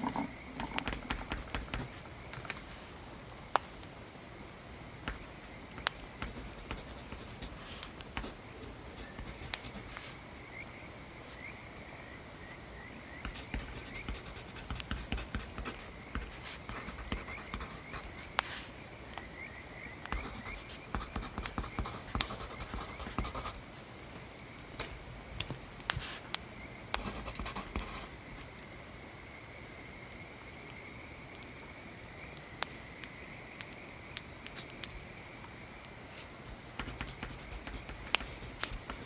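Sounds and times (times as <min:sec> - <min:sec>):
pen scratching on paper: 0:00.0 - 0:02.0, 0:06.2 - 0:10.2, 0:13.3 - 0:18.7, 0:20.1 - 0:23.6, 0:27.0 - 0:28.1, 0:36.8 - 0:39.0
crackling bonfire: 0:00.0 - 0:22.3, 0:23.6 - 0:39.0.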